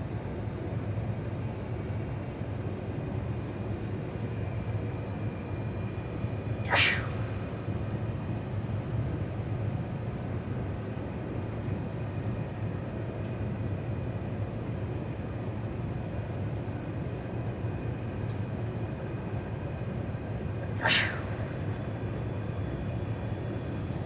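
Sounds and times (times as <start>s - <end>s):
airplane cabin engine rumble: 20.6s - 23.7s.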